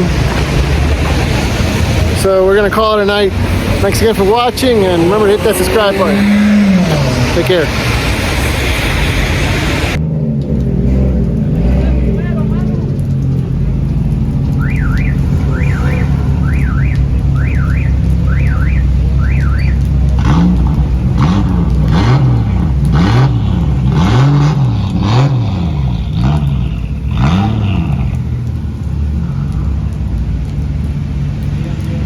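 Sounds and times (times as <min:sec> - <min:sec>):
engine revving: 0:00.0 - 0:32.0
engine rumble: 0:00.0 - 0:32.0
car alarm warbling: 0:14.6 - 0:20.0.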